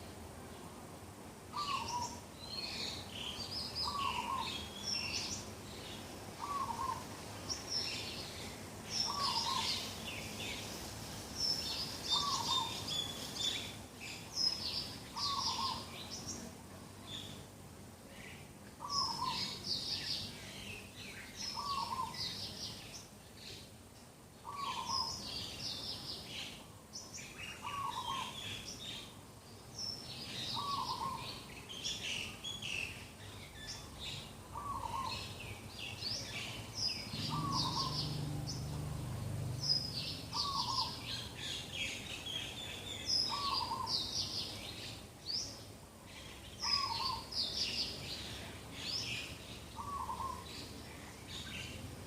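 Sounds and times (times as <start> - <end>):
birds chirping and trilling: 1.5 - 17.4, 18.1 - 23.7, 24.4 - 29.1, 29.7 - 52.0
bird short low call: 37.1 - 38.9.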